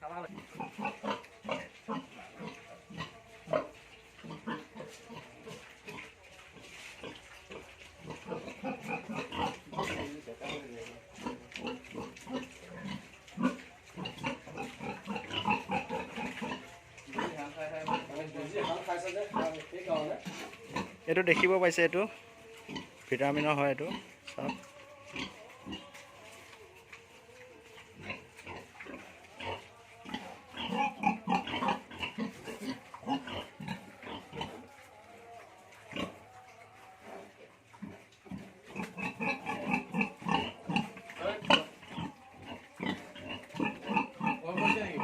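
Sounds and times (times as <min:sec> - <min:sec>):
pigs grunting: 0:00.0 - 0:23.0, 0:27.7 - 0:34.8, 0:35.8 - 0:45.0.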